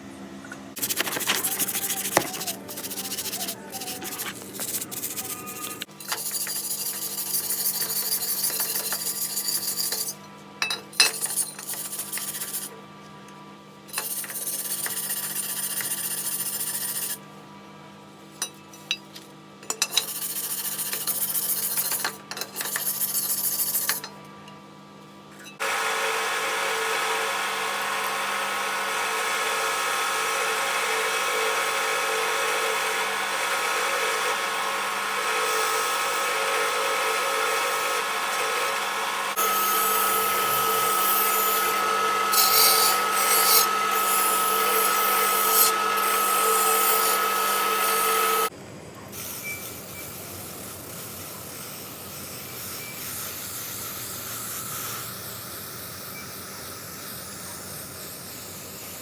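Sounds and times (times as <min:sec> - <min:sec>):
abrasive rubbing: 0:00.8 - 0:07.9
steady machine sound: 0:00.8 - 0:10.1.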